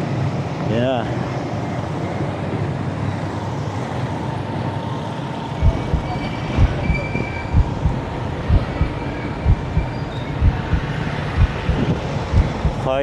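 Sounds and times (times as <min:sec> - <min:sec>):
bicycle road noise: 0:00.0 - 0:13.0
low thumps: 0:05.6 - 0:13.0
wind noise: 0:05.6 - 0:13.0.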